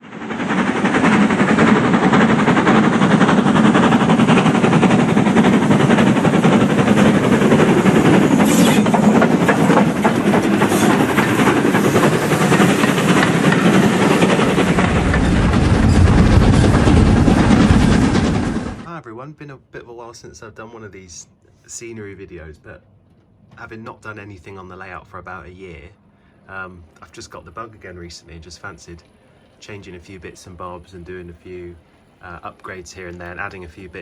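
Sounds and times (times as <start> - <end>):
deep rumble: 0.0 - 18.9
model train rolling on track: 0.0 - 18.9, 26.5 - 34.0.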